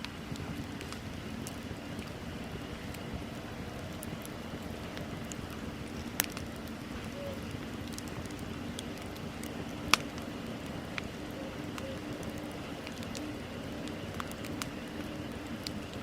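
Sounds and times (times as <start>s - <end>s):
bonfire flames hissing: 0.0s - 16.0s
fire crackling: 0.0s - 16.0s
sharp pops of fire: 3.9s - 10.3s.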